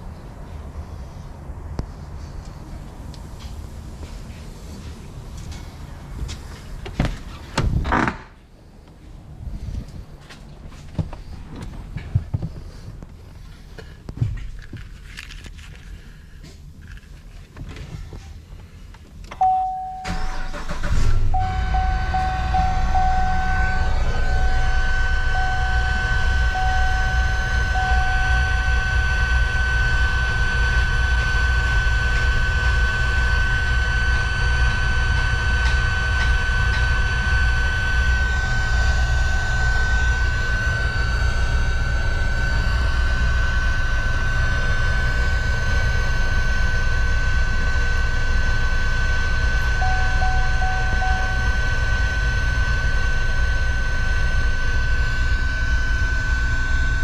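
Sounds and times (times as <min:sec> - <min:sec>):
car engine starting and idling: 0:00.0 - 0:57.0
interrupted chime: 0:19.4 - 0:20.8, 0:21.4 - 0:29.3, 0:49.8 - 0:52.1
steady high-pitched tone: 0:19.4 - 0:57.0.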